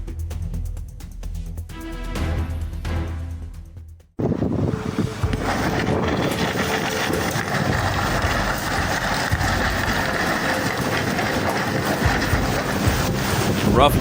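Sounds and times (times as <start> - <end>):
engine running: 4.2 - 14.0
wind rumbling: 4.2 - 14.0.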